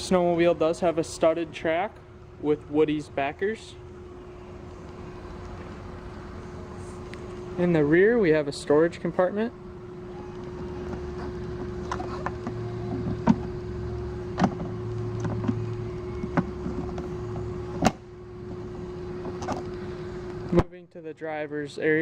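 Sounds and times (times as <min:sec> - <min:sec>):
steady hum: 0:00.0 - 0:22.0
storage compartment clicks and knocks: 0:11.9 - 0:13.5.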